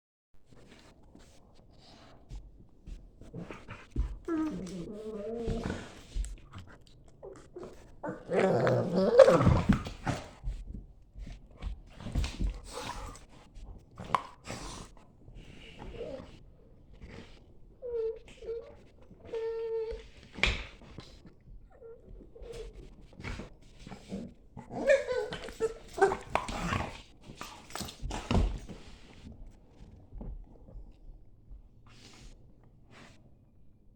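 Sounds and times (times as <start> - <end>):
dogs growling while play-fighting: 3.1 - 10.7, 11.3 - 30.8.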